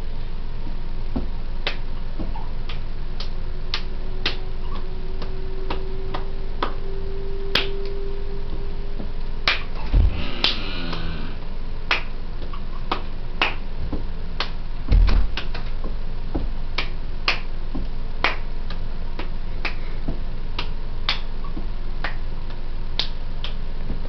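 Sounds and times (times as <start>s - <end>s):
finger snaps: 1.6s - 6.8s, 16.8s - 24.0s
heavy stomp thump: 9.8s - 11.5s, 14.9s - 15.6s.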